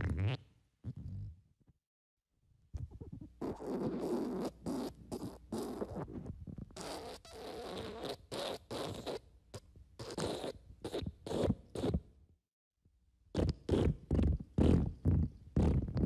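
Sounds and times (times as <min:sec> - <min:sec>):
raspy fart sound effects: 0:13.4 - 0:16.0.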